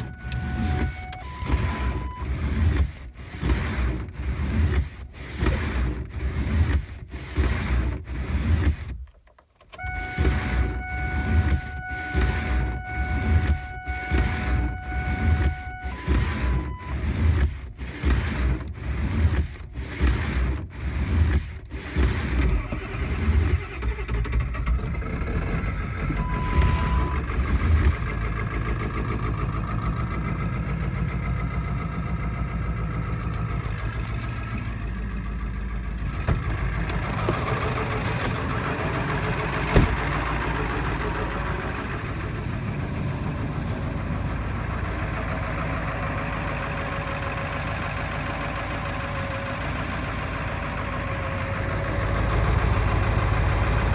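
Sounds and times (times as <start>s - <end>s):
short beep: 0.0s - 2.3s, 26.2s - 27.3s
diesel engine starting and idling: 0.0s - 9.0s, 9.7s - 53.9s.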